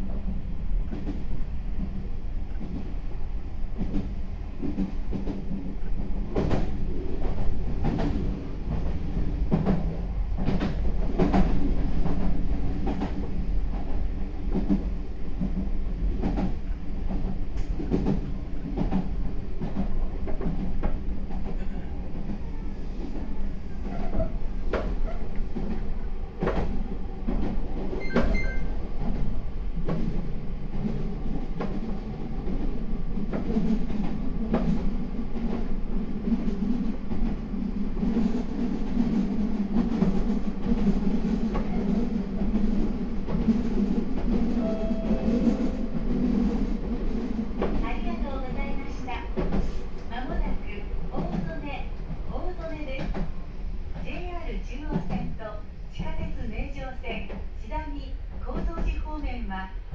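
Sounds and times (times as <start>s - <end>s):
train wheels rumbling on rail: 0.0s - 59.9s
short high beep: 28.0s - 28.7s.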